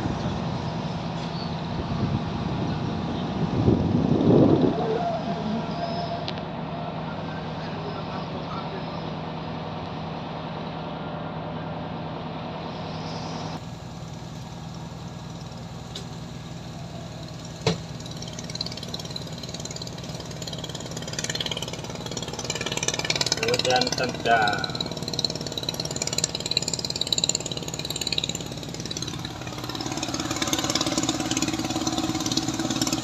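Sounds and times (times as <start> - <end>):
engine idling: 0.0 - 33.0
wind noise: 1.6 - 5.7.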